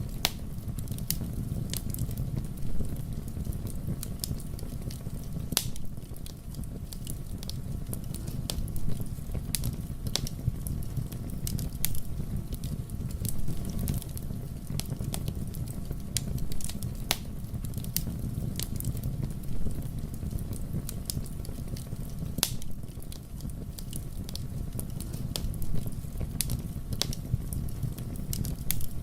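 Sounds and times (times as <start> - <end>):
fire crackling and popping: 0.0 - 29.0
wood fire burning: 0.0 - 29.0.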